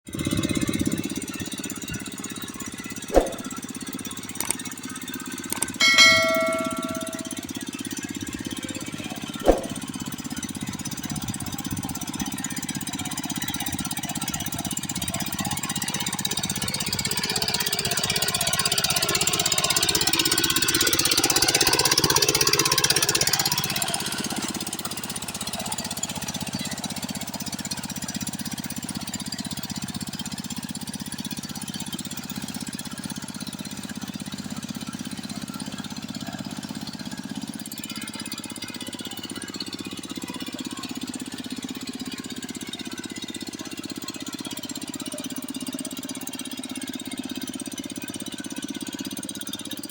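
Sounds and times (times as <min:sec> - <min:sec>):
sharp click: 0:03.1 - 0:03.5, 0:09.4 - 0:09.8
hand tractor engine running: 0:22.9 - 0:49.9.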